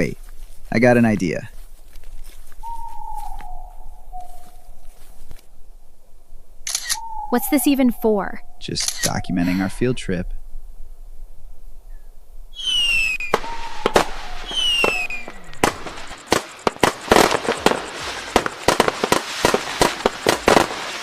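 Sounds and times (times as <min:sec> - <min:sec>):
firework bangs and crackles: 0:12.6 - 0:21.0
firework falling whistle: 0:12.6 - 0:21.0.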